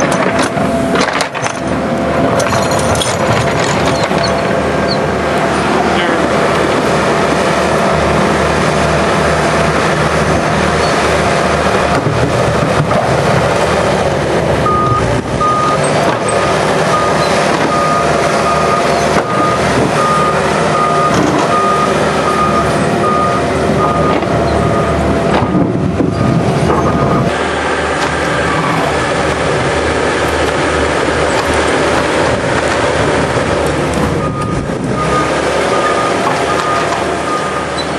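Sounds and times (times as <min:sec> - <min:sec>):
diesel engine running loudly: 0:00.0 - 0:37.9
reversing alarm beeping: 0:14.6 - 0:25.2, 0:25.8 - 0:27.4, 0:34.2 - 0:37.9.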